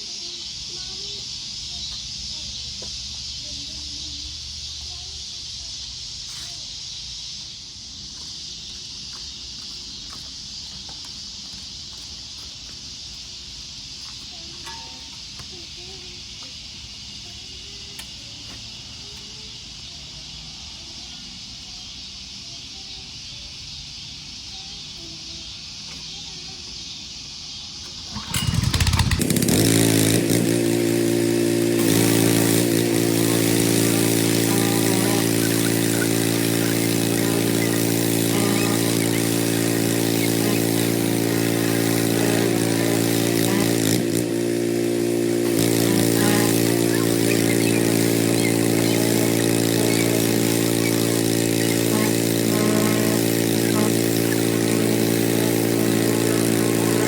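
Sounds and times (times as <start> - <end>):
engine starting and idling: 27.8 - 57.0.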